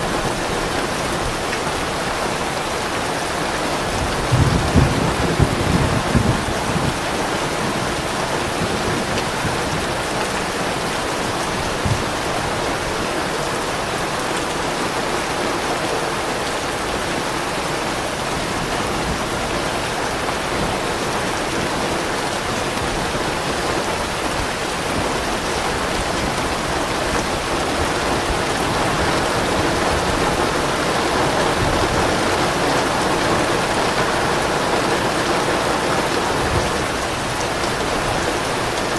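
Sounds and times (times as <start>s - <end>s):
steady rainfall: 0.0s - 38.9s
soft thunder rumble: 3.9s - 12.9s.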